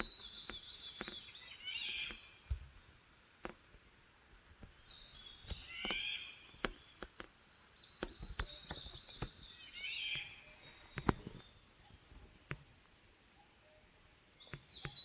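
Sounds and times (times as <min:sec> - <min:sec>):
birds chirping: 0:00.0 - 0:02.6, 0:04.6 - 0:15.0
sharp clicks and taps: 0:06.6 - 0:07.4.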